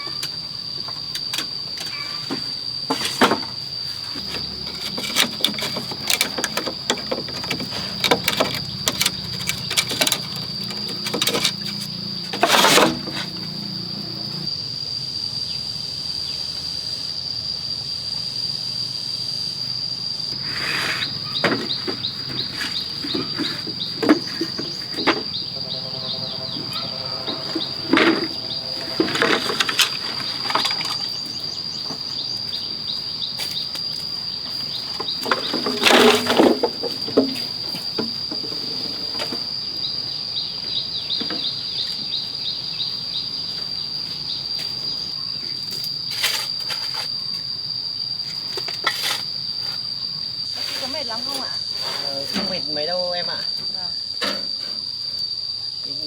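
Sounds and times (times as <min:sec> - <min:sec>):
high-pitched insect drone: 0:00.0 - 0:56.0
knocks and clatter: 0:00.8 - 0:13.7, 0:21.1 - 0:31.2
scraping burst: 0:22.4 - 0:31.1.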